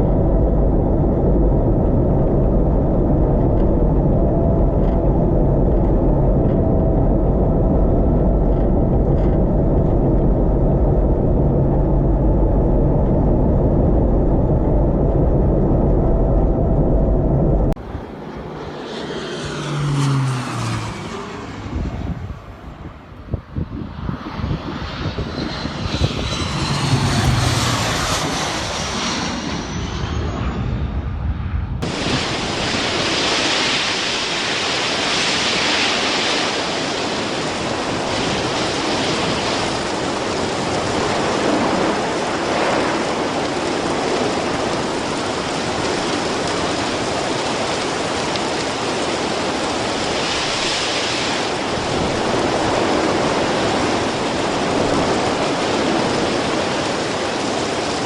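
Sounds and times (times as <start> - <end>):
aircraft engine drone: 0.0 - 58.0
loud steady rushing noise: 15.8 - 58.0.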